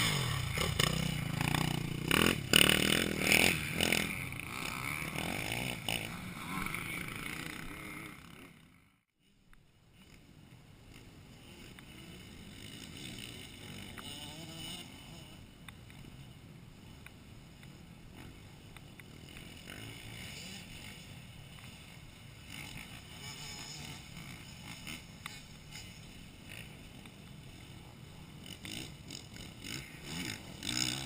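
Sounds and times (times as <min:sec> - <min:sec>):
motocross bike engines: 0:00.0 - 0:31.0
steady background noise: 0:00.0 - 0:31.0.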